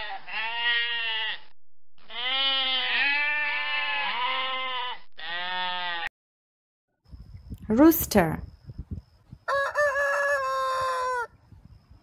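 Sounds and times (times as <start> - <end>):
sheep bleating: 0.0 - 6.1.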